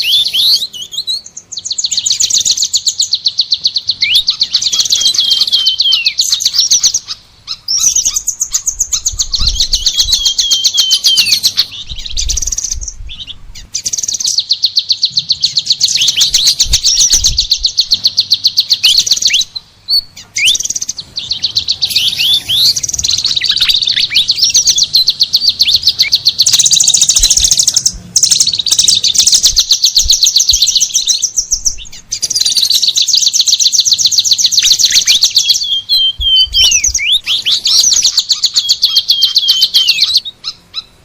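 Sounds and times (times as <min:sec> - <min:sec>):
songbird trilling: 0:00.0 - 0:41.0
downward-sliding whistled bird notes: 0:07.5 - 0:19.5, 0:20.4 - 0:40.2.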